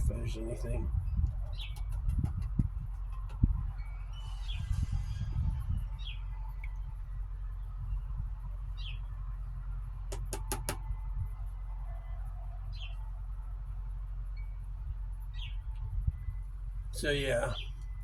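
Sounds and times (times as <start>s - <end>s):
low rumble: 0.0s - 10.1s, 10.8s - 17.0s
bird chirping: 0.1s - 6.8s, 12.0s - 13.1s, 15.3s - 16.4s, 17.0s - 18.0s
quick taps: 10.1s - 10.8s.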